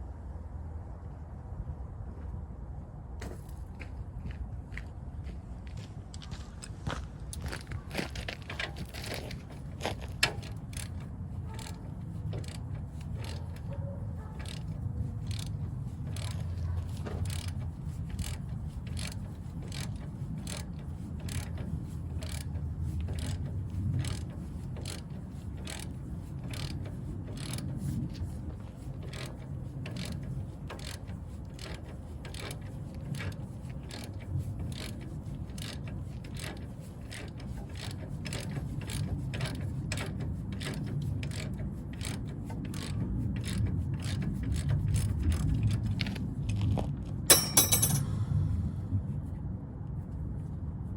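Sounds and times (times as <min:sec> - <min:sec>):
ratchet wrench clicking: 0:10.2 - 0:13.7, 0:14.4 - 0:28.0, 0:29.9 - 0:45.4, 0:47.3 - 0:48.1.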